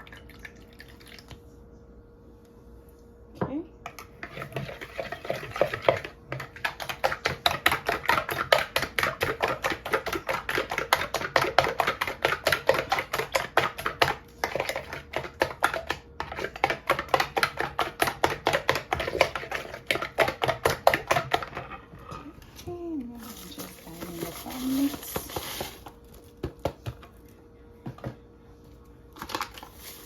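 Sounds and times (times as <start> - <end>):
utensil beating eggs in bowl: 3.8 - 22.2.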